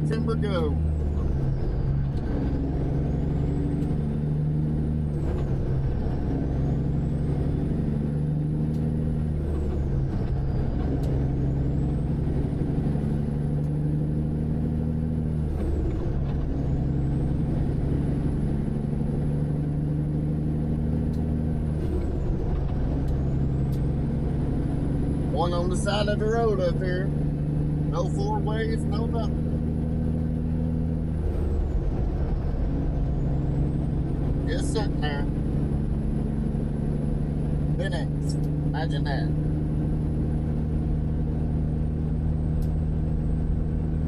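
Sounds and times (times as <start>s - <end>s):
high engine whine: 0.0s - 44.0s
truck diesel engine shifting gears: 0.0s - 44.0s.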